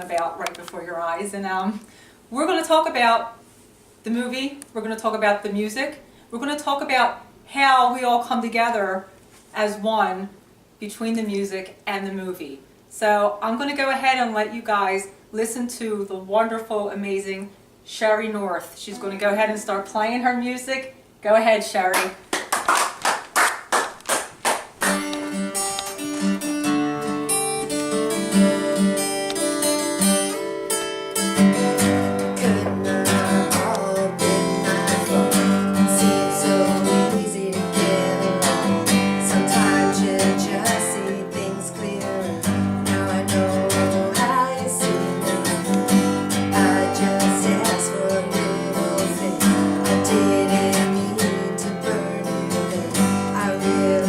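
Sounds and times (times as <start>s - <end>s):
acoustic guitar strumming: 18.9s - 19.3s, 24.8s - 54.0s.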